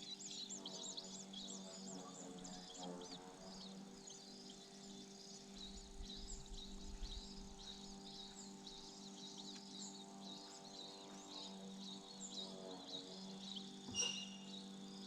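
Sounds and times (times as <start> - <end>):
steady low hum: 0.0 - 15.0
high-pitched bird chirps: 13.9 - 14.6.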